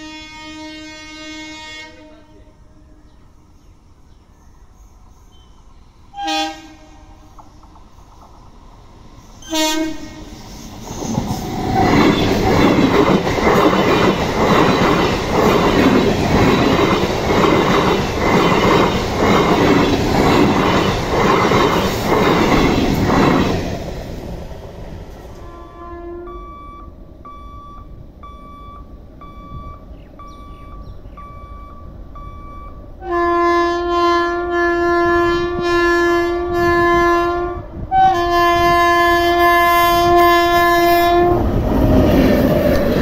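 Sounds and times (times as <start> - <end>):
train horn blasts: 0.0 - 3.0, 6.1 - 7.3, 9.4 - 10.4, 25.3 - 26.9, 33.0 - 41.4
train wheels clattering over joints: 10.2 - 24.0.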